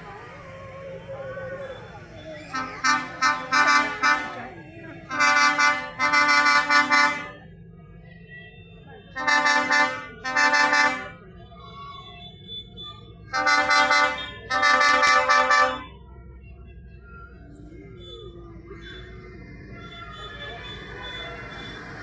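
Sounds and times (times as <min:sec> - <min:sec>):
low rumble of engines: 0:00.0 - 0:22.0
vehicle horn honking: 0:02.5 - 0:07.4, 0:09.1 - 0:11.2, 0:13.3 - 0:15.9.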